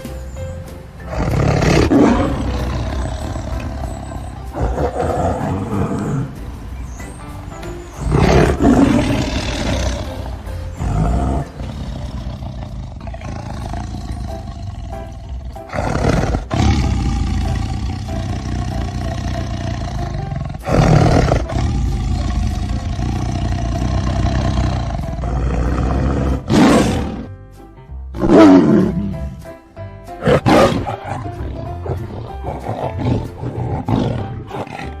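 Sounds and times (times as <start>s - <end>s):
background music: 0.0s - 35.0s
tiger roaring: 1.1s - 6.4s, 8.0s - 27.4s, 28.2s - 29.4s, 30.2s - 35.0s.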